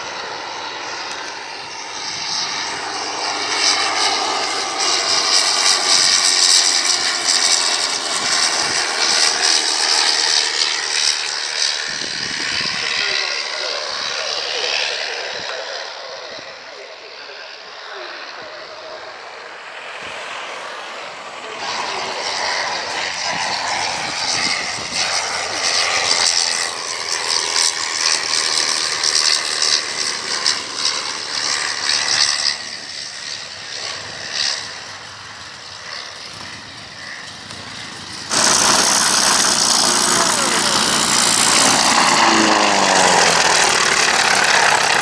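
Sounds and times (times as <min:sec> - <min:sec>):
aircraft flying past: 0:00.0 - 0:45.0
loud steady rush: 0:16.3 - 0:32.9, 0:36.2 - 0:45.0.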